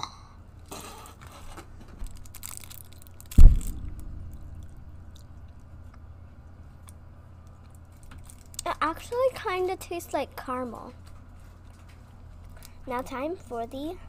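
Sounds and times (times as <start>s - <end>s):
chewing and crunching candy: 0.0s - 3.9s, 6.8s - 9.2s
loud dull thump: 3.3s - 5.1s.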